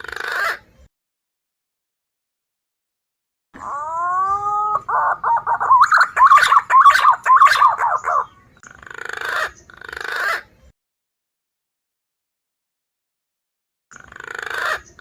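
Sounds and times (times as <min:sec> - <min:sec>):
hoarse bird call: 0:03.6 - 0:09.7
pigeon whistled calls: 0:03.7 - 0:08.6.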